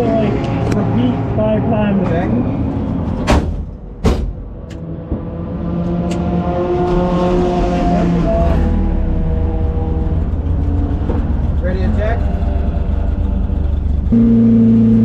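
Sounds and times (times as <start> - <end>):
car engine hum: 0.0 - 15.0
low rumble: 0.0 - 15.0
sharp knocks: 3.2 - 4.4.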